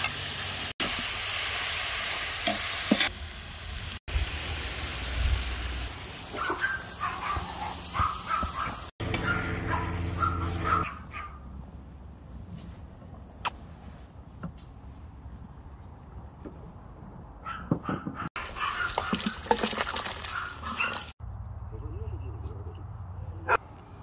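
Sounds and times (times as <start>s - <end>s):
vegetables sizzling in a pot: 0.0s - 8.9s.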